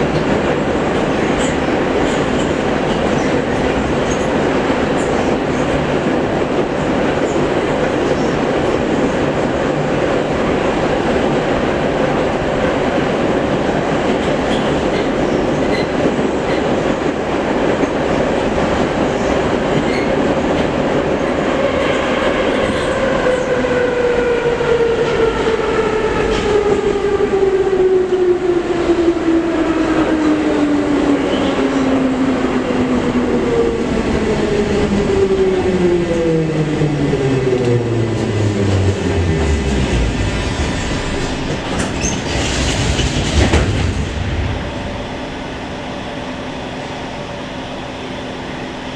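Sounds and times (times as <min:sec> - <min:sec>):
train wheel and rail noise: 0:00.0 - 0:48.9.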